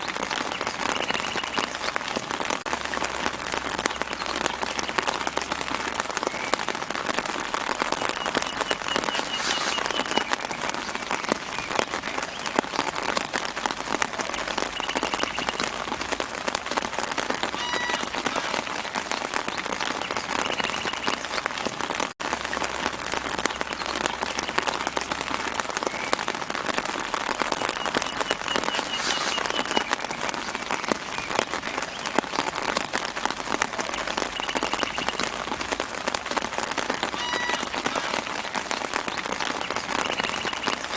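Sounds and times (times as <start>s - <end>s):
rain on tree leaves: 0.0s - 40.9s
bird trilling: 37.2s - 38.0s.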